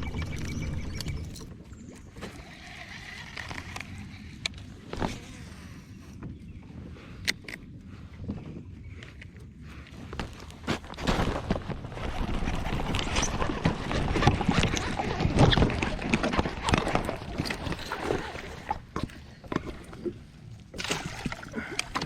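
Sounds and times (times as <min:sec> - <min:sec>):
knocks and rustling against kayak: 0:08.2 - 0:22.0.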